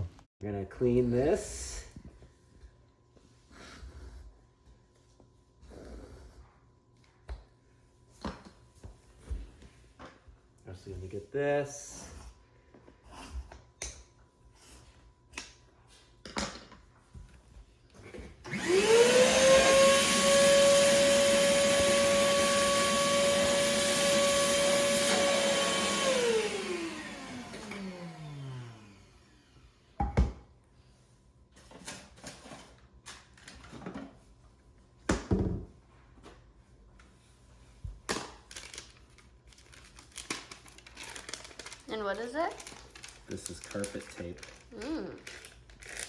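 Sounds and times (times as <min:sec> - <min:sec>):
vacuum cleaner motor whine: 0:18.4 - 0:30.0.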